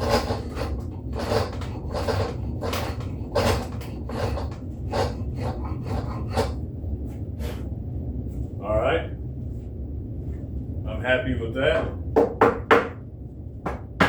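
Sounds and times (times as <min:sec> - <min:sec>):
spokeshave cutting wood: 0:00.0 - 0:06.6.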